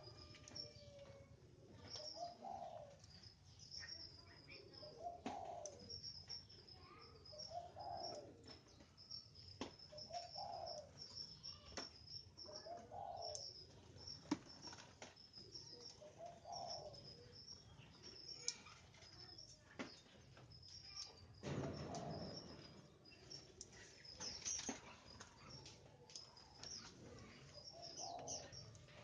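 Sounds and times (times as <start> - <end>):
small birds chirping: 0.0 - 29.0
dove cooing: 1.8 - 3.0, 4.8 - 6.0, 7.4 - 8.4, 10.0 - 11.6, 12.5 - 13.5, 16.0 - 17.2, 27.0 - 28.7.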